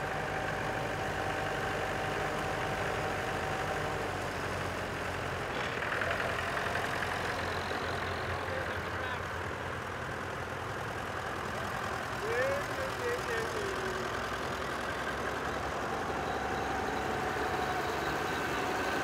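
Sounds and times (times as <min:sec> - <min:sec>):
tractor engine idling: 0:00.0 - 0:19.0
person speaking: 0:12.2 - 0:14.1.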